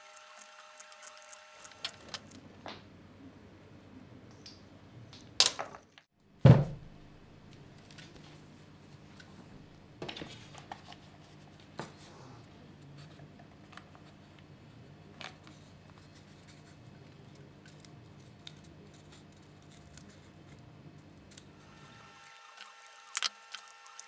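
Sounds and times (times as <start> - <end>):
scissors snipping: 0.0 - 2.4, 21.8 - 24.0.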